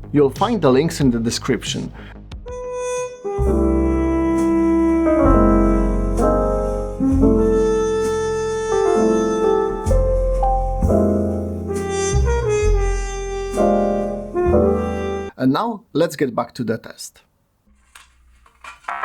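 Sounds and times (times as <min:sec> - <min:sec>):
piano chords with deep bass: 0:03.4 - 0:15.3.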